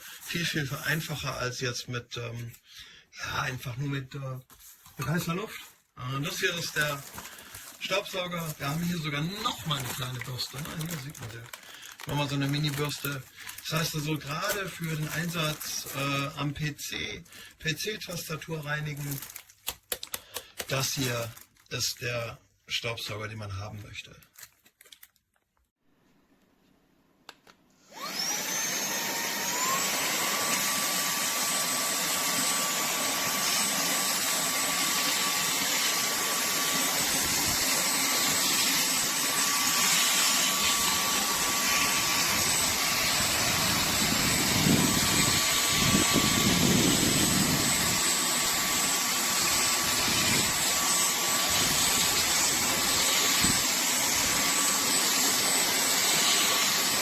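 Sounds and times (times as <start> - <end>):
handheld vacuum motor whine: 6.3 - 16.4, 27.8 - 57.0.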